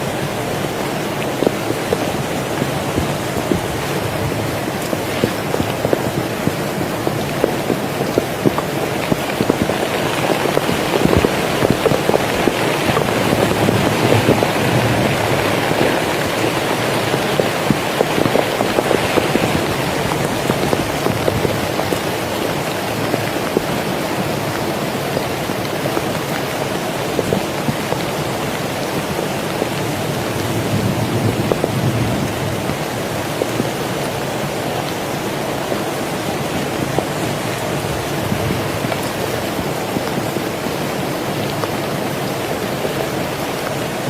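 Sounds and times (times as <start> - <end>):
heavy rain falling: 0.0 - 44.0.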